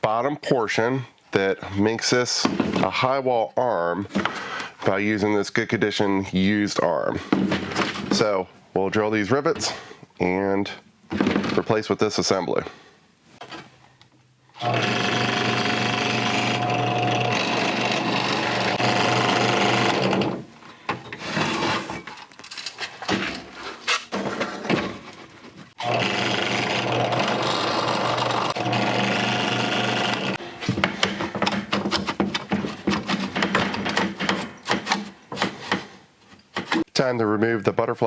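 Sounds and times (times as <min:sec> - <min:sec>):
power drill drilling rivets: 0:14.6 - 0:23.2, 0:25.8 - 0:35.3
knocking and rattling: 0:16.6 - 0:36.9.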